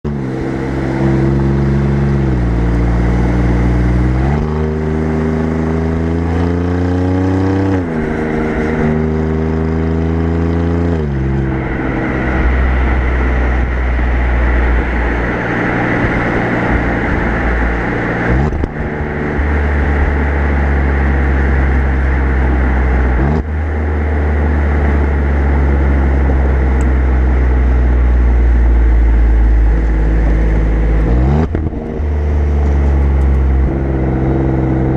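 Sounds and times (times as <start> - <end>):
car exhaust accelerating: 0.0 - 34.9
rushing noise: 0.1 - 34.9.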